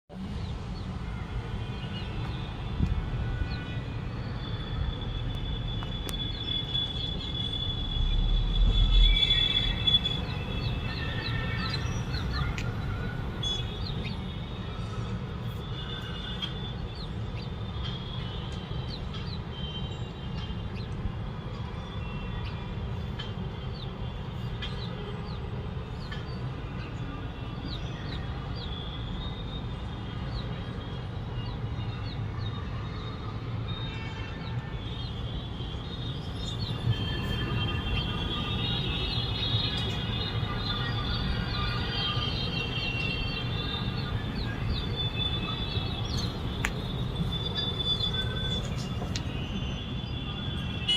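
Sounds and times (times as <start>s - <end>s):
small birds chirping: 38.6s - 49.2s.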